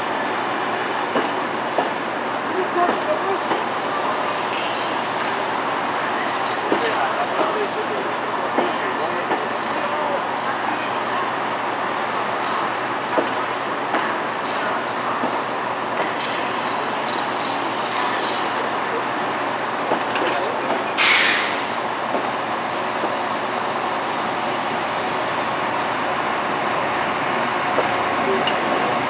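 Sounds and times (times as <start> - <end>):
train wheels rumbling on rails: 0.0 - 29.0
loud burst of noise: 21.0 - 21.9.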